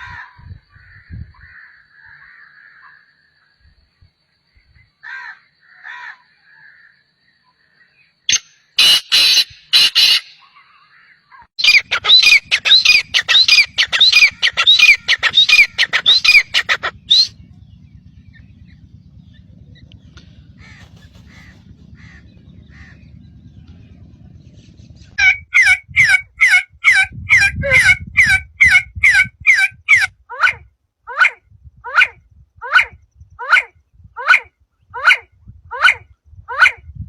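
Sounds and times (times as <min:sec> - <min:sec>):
bird sharp calls: 0:08.3 - 0:30.6.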